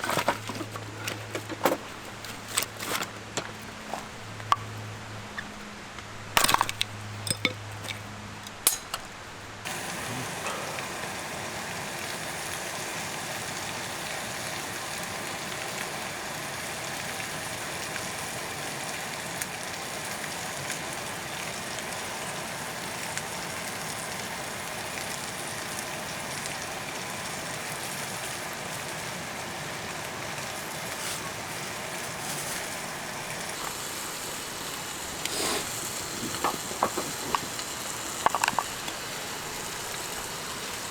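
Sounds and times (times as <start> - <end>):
sharp clinks and knocks: 6.4 - 9.1
food sizzling in a pan: 9.7 - 40.9.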